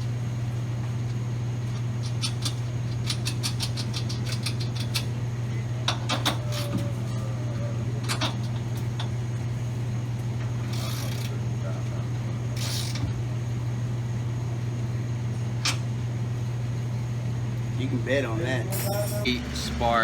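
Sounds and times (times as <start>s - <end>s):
low shop hum: 0.0s - 20.0s
hand tools clicking on metal: 2.0s - 5.1s.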